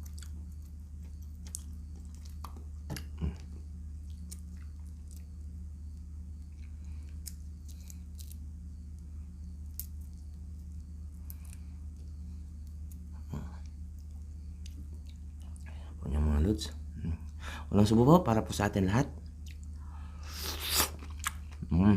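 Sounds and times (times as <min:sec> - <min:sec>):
person chewing with wet mouth sounds: 0:00.0 - 0:08.4, 0:09.4 - 0:15.8, 0:19.2 - 0:21.7
steady low hum: 0:00.0 - 0:21.9.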